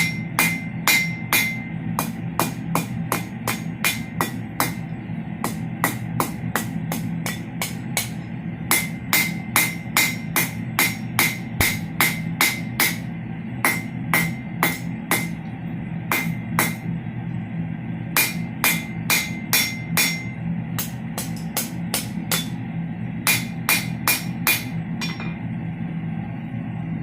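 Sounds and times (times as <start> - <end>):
hammer ringing on steel anvil: 0.0 - 4.8, 5.4 - 13.0, 13.6 - 15.4, 16.1 - 16.8, 18.2 - 22.6, 23.2 - 25.5
low steady hum: 0.0 - 27.0.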